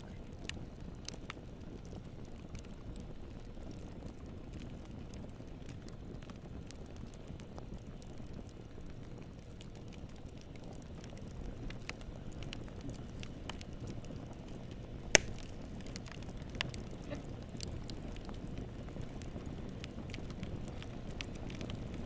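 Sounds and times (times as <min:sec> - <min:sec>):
wood fire crackling: 0:00.0 - 0:22.0
sharp pop from fire: 0:15.1 - 0:15.9.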